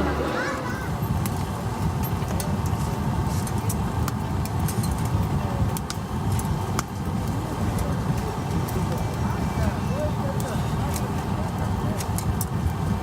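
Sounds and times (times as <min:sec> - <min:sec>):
firewood crackling and popping: 0:01.0 - 0:13.0.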